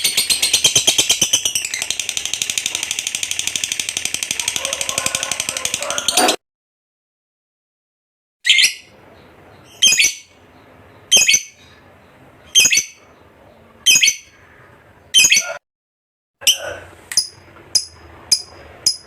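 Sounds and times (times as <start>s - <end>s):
lovebird shrill calls: 9.6s - 10.3s, 11.1s - 11.6s, 12.5s - 13.0s, 13.8s - 14.3s, 15.1s - 15.6s.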